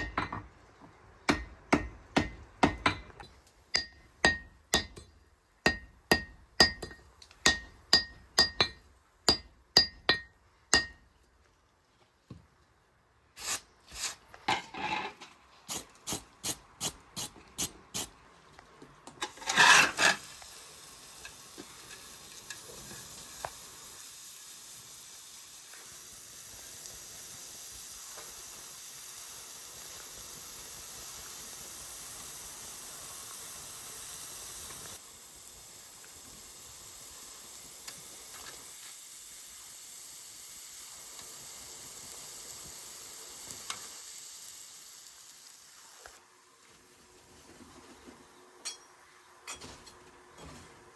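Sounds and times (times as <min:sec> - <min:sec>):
burning gas hissing: 0:13.4 - 0:18.2, 0:19.2 - 0:46.5.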